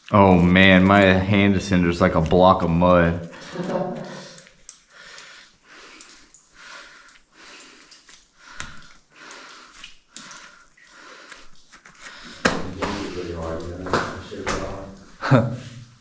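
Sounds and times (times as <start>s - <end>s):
body scraping and clicking: 0.0s - 15.1s
person breathing hard: 3.3s - 13.6s.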